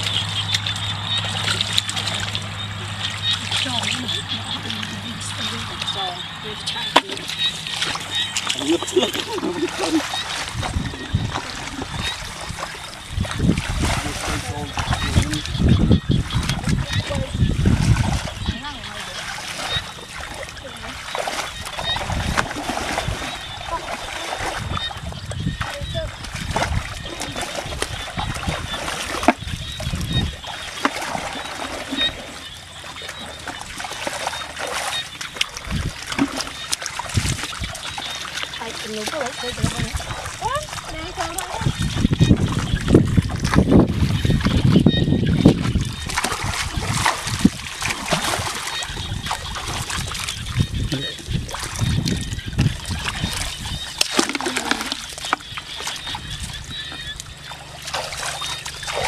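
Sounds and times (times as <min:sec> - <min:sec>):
water splashing and trickling: 0:00.0 - 0:59.0.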